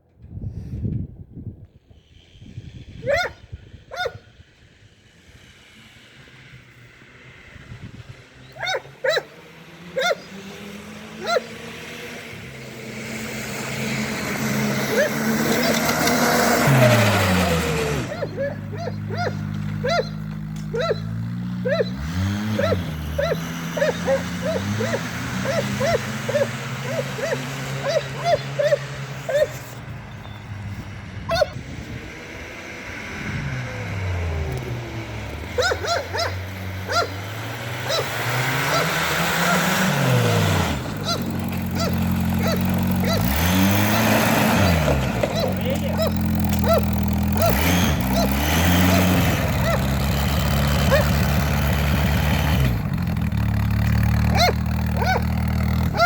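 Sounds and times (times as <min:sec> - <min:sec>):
engine running: 0:01.8 - 0:56.0
dog barking: 0:03.0 - 0:04.3, 0:08.6 - 0:09.3, 0:10.0 - 0:10.3, 0:11.2 - 0:11.6, 0:14.9 - 0:15.8, 0:18.1 - 0:22.0, 0:22.6 - 0:29.6, 0:31.3 - 0:31.6, 0:35.6 - 0:37.2, 0:37.8 - 0:39.7, 0:41.0 - 0:43.4, 0:45.4 - 0:49.9, 0:50.9 - 0:51.2, 0:54.3 - 0:55.3.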